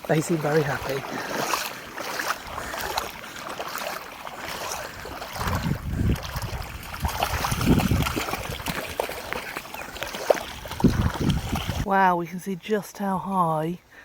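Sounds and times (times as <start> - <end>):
splashing through shallow water: 0.0 - 11.9
wind rumbling on microphone: 4.4 - 11.9.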